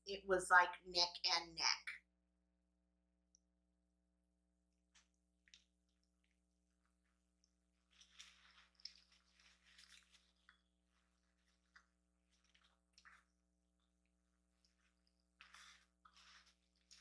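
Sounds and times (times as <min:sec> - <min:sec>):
person chewing food: 0:04.8 - 0:17.0.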